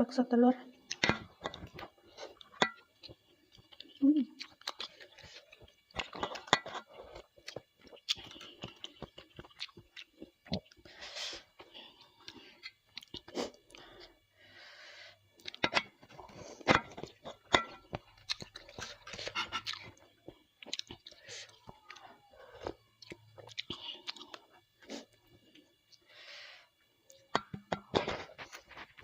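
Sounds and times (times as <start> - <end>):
person chewing and biting: 0.8 - 10.9, 11.8 - 14.0, 15.4 - 22.0, 22.6 - 25.2.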